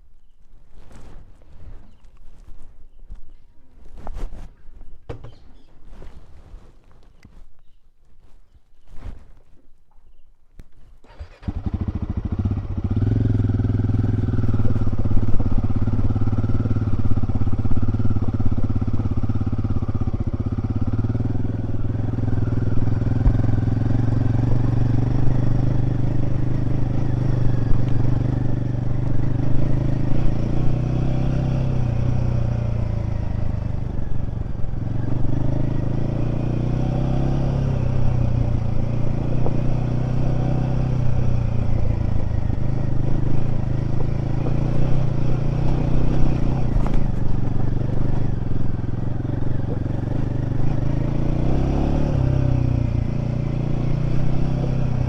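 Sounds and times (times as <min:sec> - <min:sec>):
motorcycle engine running: 0:11.1 - 0:55.0.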